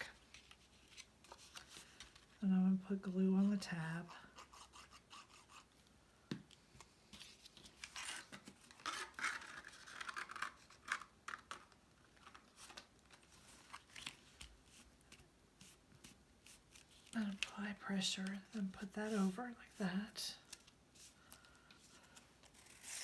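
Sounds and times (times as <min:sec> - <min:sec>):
cardstock rustling and scraping: 0:00.1 - 0:02.4, 0:07.1 - 0:17.5, 0:21.8 - 0:23.0.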